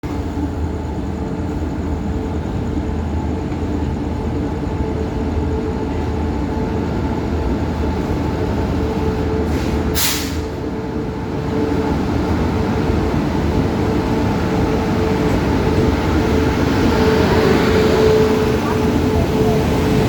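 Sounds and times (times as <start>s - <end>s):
train rumbling and humming: 0.0s - 20.0s
short hiss: 9.5s - 10.5s.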